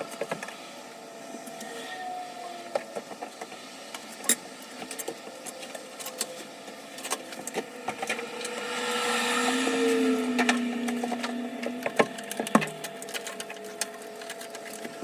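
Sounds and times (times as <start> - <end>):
small motor running: 4.2 - 15.0
lower tone: 5.8 - 15.0.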